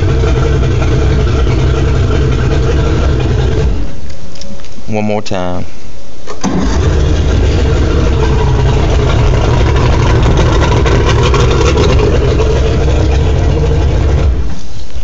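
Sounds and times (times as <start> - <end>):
outboard engine idling: 0.0 - 4.1, 6.4 - 15.0.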